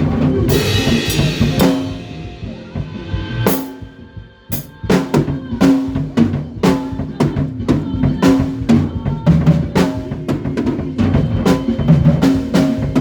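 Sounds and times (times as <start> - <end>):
kick and snare drums: 0.0 - 2.0, 3.4 - 13.0
band rehearsing: 0.0 - 13.0
cymbal crash: 0.5 - 4.8.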